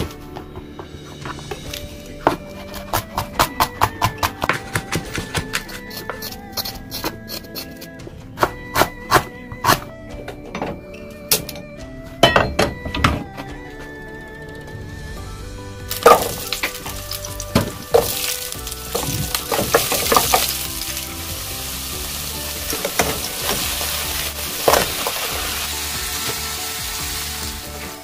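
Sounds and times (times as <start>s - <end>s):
soft background music: 0.0s - 28.0s
shrimp sizzling in oil: 15.9s - 28.0s.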